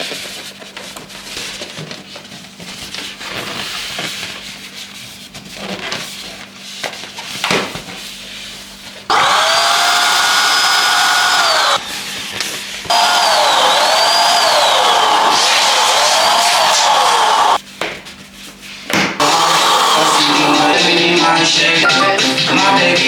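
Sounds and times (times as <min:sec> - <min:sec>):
electric balloon pump whining: 0:09.1 - 0:17.6, 0:19.2 - 0:20.6.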